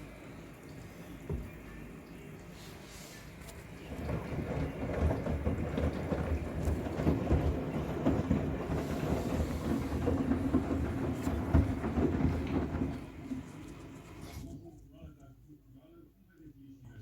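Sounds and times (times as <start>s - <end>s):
washing machine motor hum: 0.0s - 15.2s
towels tumbling and sloshing: 2.6s - 14.3s.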